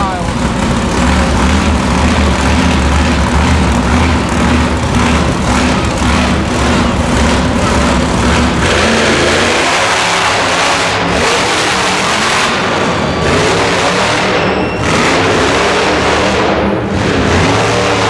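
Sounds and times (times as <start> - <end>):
engine revving: 0.0 - 18.0
heavy engine humming: 0.0 - 18.0.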